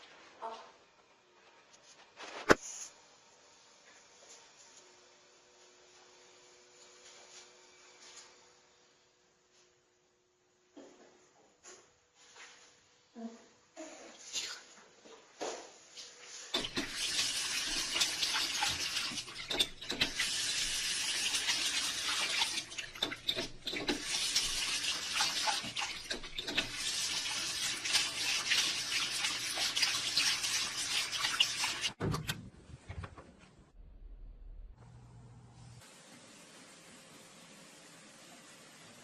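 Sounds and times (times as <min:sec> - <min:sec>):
water running: 0:16.5 - 0:32.0.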